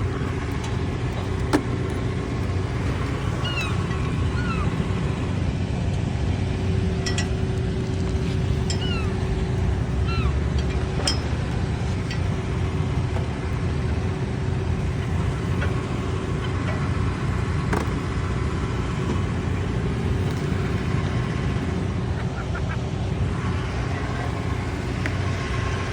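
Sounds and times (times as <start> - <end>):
seagulls squawking: 0.0 - 5.5, 8.1 - 12.8, 18.1 - 25.8
steady hum: 0.0 - 25.9.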